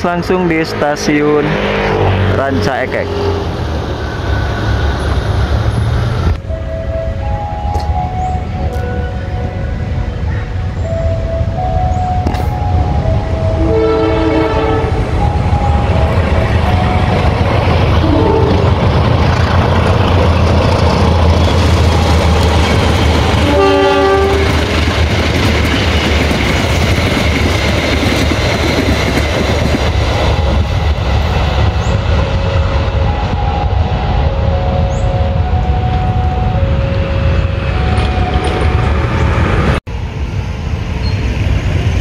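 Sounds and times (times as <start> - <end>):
train rumbling on rails: 0.0 - 42.0
locomotive horn: 6.5 - 18.9, 23.4 - 24.8.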